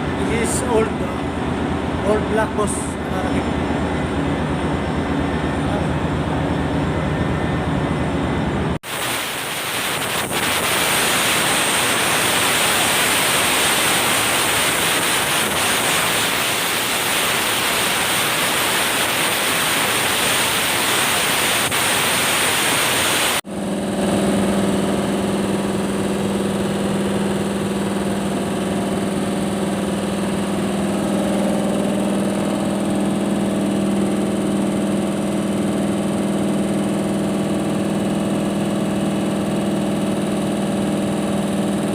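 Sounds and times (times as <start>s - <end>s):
machine motor humming: 0.0s - 41.9s
loud rushing hiss: 8.8s - 23.4s.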